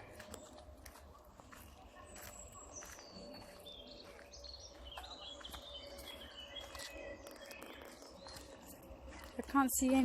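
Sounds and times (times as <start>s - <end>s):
small birds chirping and singing: 0.0s - 10.0s.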